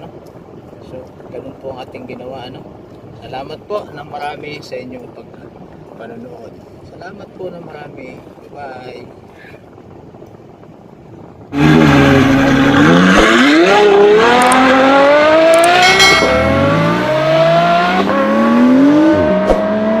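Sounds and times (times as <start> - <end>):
car engine accelerating: 11.5 - 20.0.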